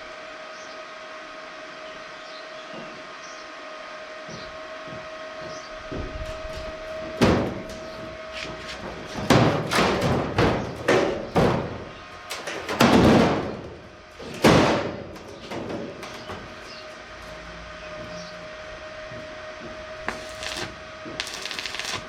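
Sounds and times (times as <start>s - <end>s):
steel sheet being banged: 8.8s - 15.1s.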